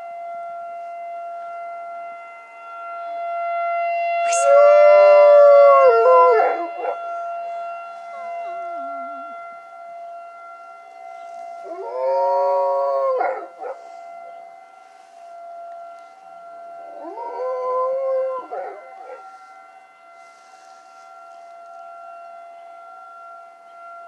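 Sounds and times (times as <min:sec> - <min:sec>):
tornado siren steady tone: 0:00.0 - 0:24.0
dog howling: 0:04.3 - 0:07.0, 0:11.6 - 0:14.0, 0:16.9 - 0:19.3.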